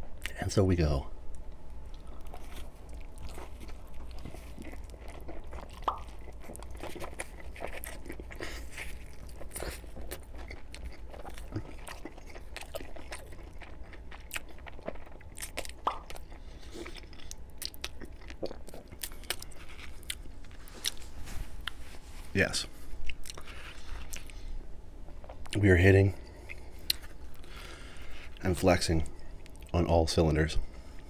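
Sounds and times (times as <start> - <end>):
biting and chewing pizza: 1.4 - 21.8, 23.0 - 29.8
crust crunching: 1.9 - 17.1.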